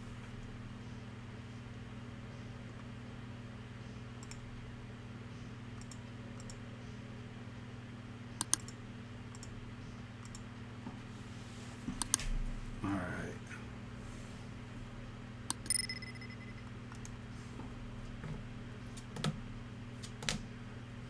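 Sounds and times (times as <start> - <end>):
low electrical hum: 0.0 - 21.0
keyboard clicks: 4.2 - 4.4, 5.8 - 6.6, 8.4 - 9.5, 10.2 - 10.4, 12.0 - 12.2, 15.5 - 17.2, 20.0 - 20.4.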